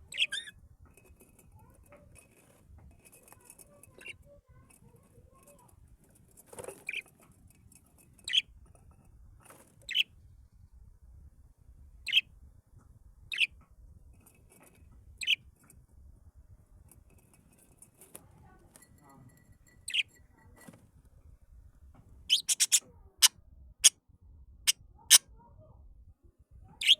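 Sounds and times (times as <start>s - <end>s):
birds chirping: 0.0s - 0.5s, 19.8s - 20.2s, 22.3s - 22.8s.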